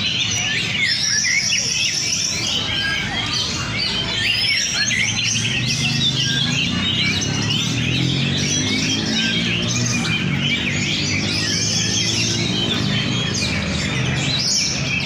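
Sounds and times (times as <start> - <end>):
birds singing: 0.0 - 15.0.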